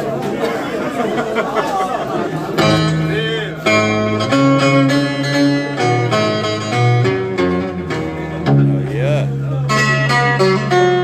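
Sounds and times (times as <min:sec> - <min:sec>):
plucked string instrument melody: 0:02.2 - 0:11.0.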